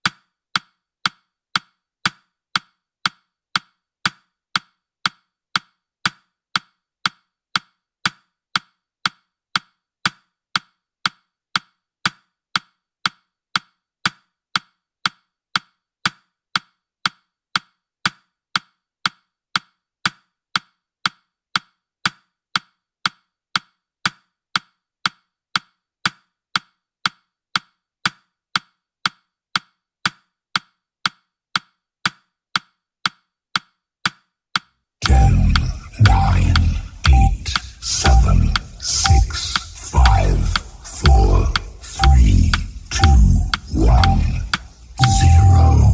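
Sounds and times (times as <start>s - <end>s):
timer ticking clicks: 34.6s - 45.9s.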